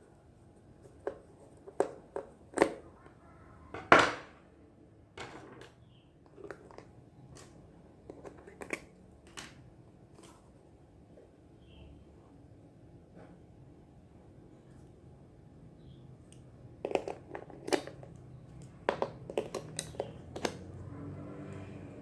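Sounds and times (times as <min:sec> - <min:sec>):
toy kitchen pieces clicking: 0:16.8 - 0:20.6.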